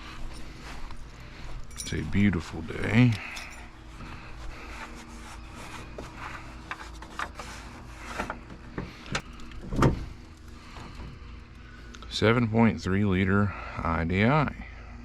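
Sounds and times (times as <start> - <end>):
rubbing and scraping: 3.8 - 9.0.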